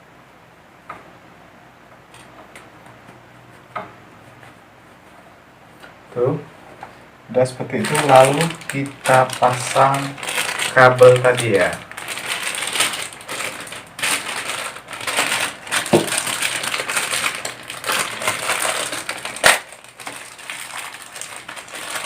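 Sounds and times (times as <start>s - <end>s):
cable crinkling and rustling: 6.7s - 22.0s.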